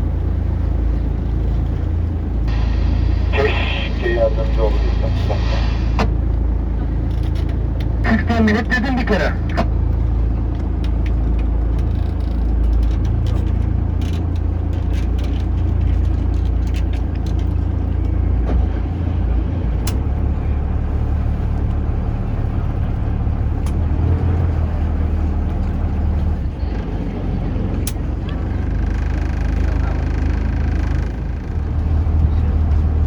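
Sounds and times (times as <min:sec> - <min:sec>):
boat engine drone: 0:00.0 - 0:33.0.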